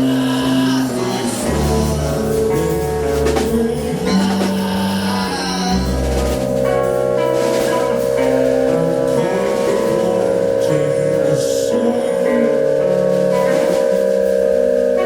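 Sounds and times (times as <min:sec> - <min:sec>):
bass notes: 0:00.0 - 0:15.0
guitar: 0:00.0 - 0:15.0
live band music: 0:00.0 - 0:15.0.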